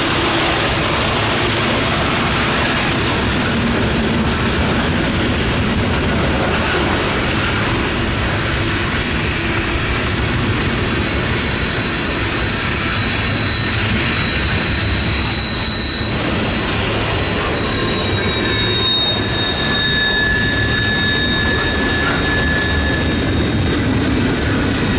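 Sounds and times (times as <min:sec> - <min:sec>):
train rumbling past: 0:00.0 - 0:24.9
high wheel squeal: 0:06.2 - 0:24.9.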